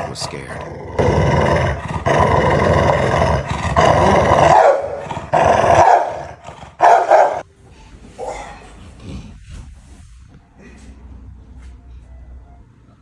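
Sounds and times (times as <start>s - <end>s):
dog growling and snarling: 0.0s - 7.4s, 8.2s - 9.8s.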